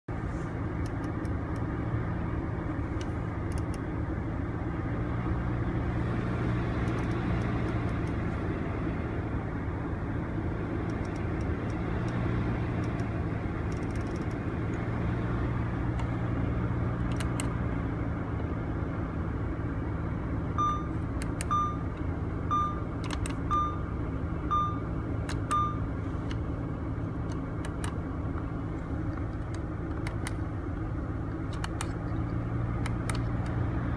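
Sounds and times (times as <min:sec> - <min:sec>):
car engine idling: 0:00.1 - 0:33.9
clicks: 0:00.8 - 0:01.7, 0:03.0 - 0:03.8, 0:06.8 - 0:08.2, 0:10.8 - 0:12.2, 0:13.7 - 0:14.4, 0:17.0 - 0:17.5, 0:23.0 - 0:23.5, 0:27.2 - 0:30.4, 0:31.3 - 0:33.6
short electronic beeps: 0:20.6 - 0:21.9, 0:22.5 - 0:22.9, 0:23.5 - 0:23.9, 0:24.5 - 0:24.9, 0:25.5 - 0:25.9.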